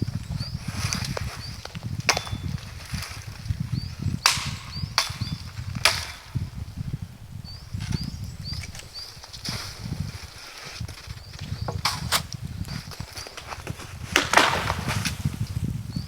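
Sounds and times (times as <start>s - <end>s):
constant low rumbling: 0.0s - 14.1s
sharp knocks: 2.0s - 3.0s, 4.1s - 6.5s.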